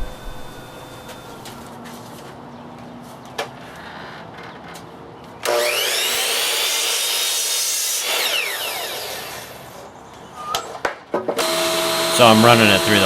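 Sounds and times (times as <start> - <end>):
woodworking machine running: 0.0 - 1.6, 5.4 - 9.5, 11.4 - 13.0.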